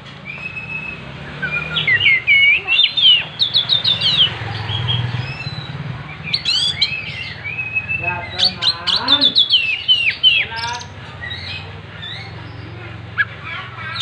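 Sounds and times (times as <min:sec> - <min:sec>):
songbird whistling and chirping: 0:00.2 - 0:14.0.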